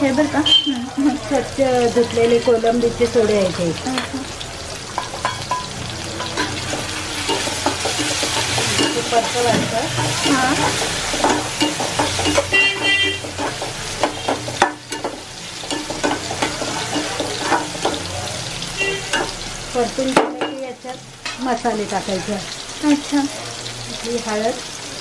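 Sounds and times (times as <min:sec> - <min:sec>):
prawns sizzling in oil: 0:00.0 - 0:25.0
metal spoon scraping pan: 0:05.0 - 0:18.1.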